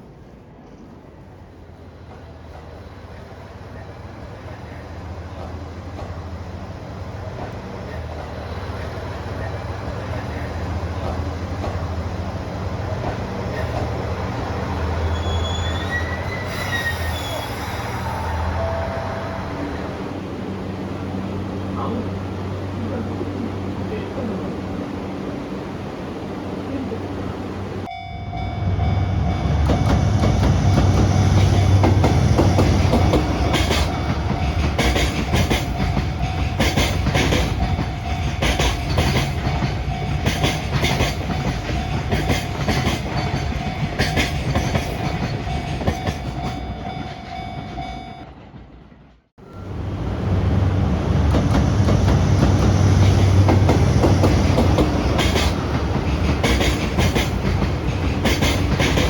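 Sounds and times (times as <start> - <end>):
train wheels clickety-clack: 0.4 - 17.1, 29.4 - 49.3, 51.2 - 59.0.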